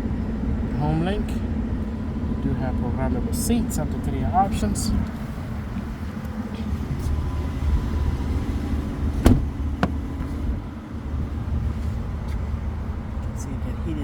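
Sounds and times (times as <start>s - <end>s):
steady low rumble: 0.0s - 14.0s
sharp clicks of cab controls: 9.2s - 10.5s.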